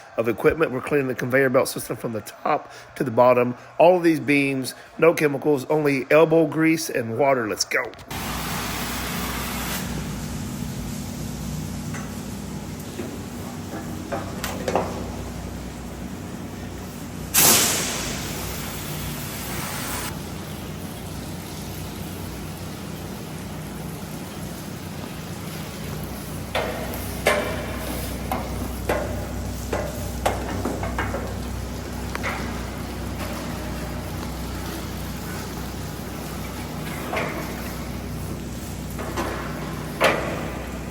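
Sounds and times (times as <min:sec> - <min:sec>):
pressure washer spray hissing: 0:08.1 - 0:12.6, 0:17.2 - 0:20.1, 0:24.3 - 0:40.9
low machine hum: 0:08.1 - 0:40.9.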